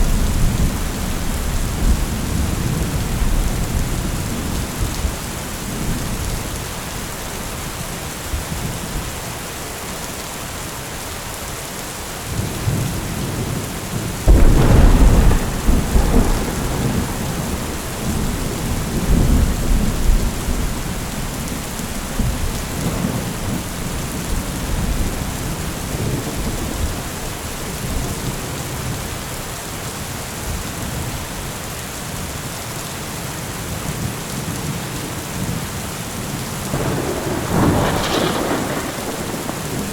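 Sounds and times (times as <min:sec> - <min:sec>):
steady rain falling: 0:00.0 - 0:39.9
thunder crack and rumble: 0:12.3 - 0:29.0, 0:36.7 - 0:39.9.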